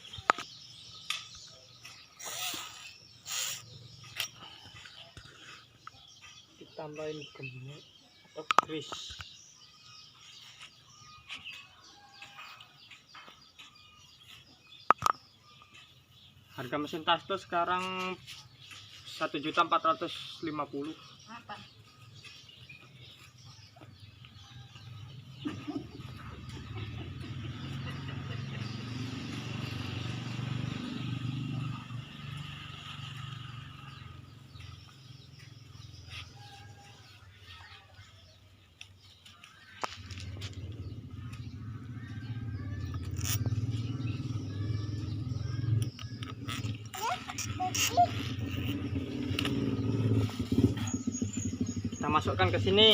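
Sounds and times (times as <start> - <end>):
faint birds chirping: 0.0 - 52.9
low engine rumble: 21.2 - 38.3, 39.5 - 52.9.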